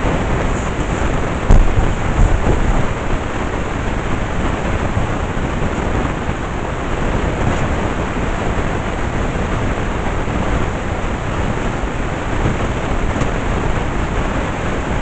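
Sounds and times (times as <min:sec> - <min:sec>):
low thumps: 0:00.0 - 0:03.6.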